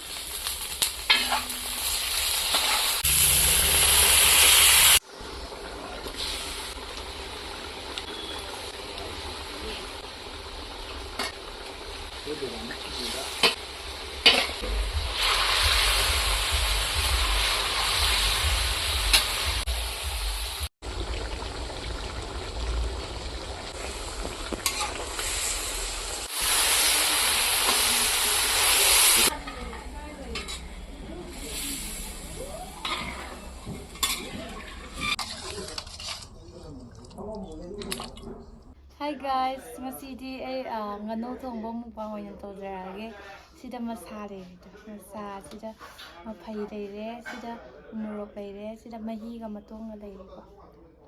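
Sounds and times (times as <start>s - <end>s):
food sizzling in a pan: 0.0s - 35.7s.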